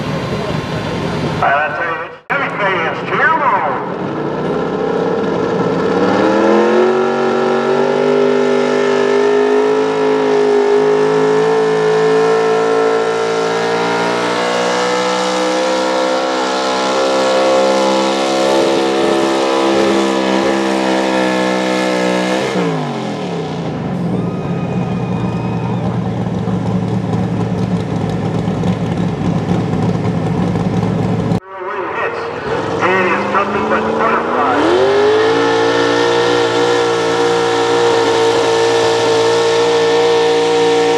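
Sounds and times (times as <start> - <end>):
truck engine revving at full throttle: 0.0 - 40.9.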